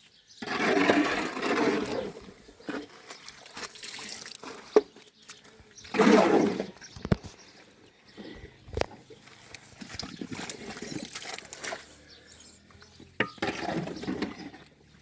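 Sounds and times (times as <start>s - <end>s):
small water splashes: 2.7s - 6.6s, 9.0s - 12.1s
water gushing and splashing: 9.4s - 12.0s.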